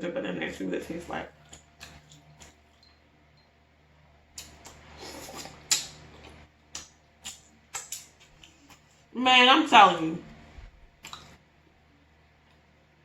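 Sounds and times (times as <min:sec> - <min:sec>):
soft squishy chewing: 0:01.2 - 0:03.5, 0:04.3 - 0:09.1, 0:10.4 - 0:11.5
wet mouth clicks and lip smacks: 0:01.4 - 0:03.0, 0:04.4 - 0:09.0, 0:11.0 - 0:11.4.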